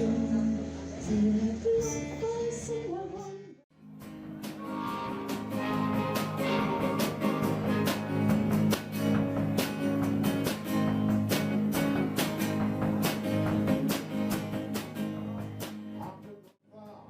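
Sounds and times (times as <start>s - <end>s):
acoustic guitar strumming: 3.7s - 16.2s.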